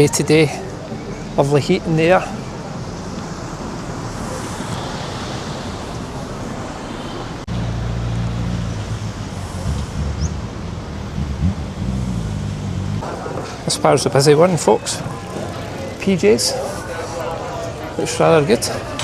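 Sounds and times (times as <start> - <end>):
street noise: 0.0 - 19.0
wind buffeting microphone: 8.3 - 13.1.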